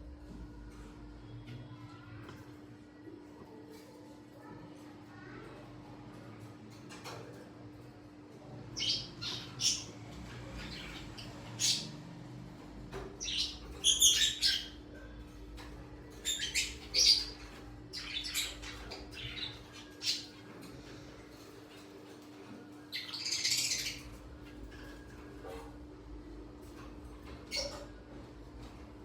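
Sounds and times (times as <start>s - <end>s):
small birds chirping and squawking: 4.7s - 29.0s.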